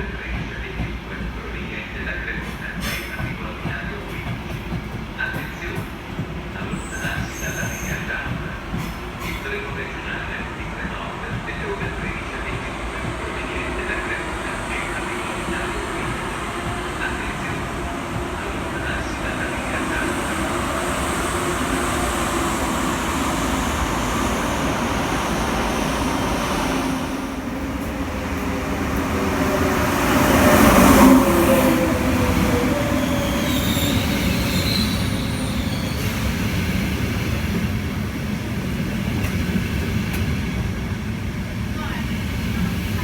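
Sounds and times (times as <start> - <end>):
train on rails: 0.0 - 43.0
train wheels squealing: 6.6 - 9.6, 30.9 - 36.9.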